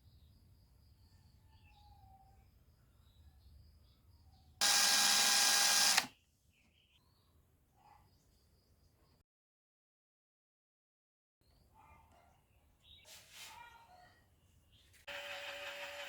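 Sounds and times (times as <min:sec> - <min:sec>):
faint bird chirps: 0:00.0 - 0:04.6
small electric motor whirring: 0:04.6 - 0:06.1, 0:15.1 - 0:16.0.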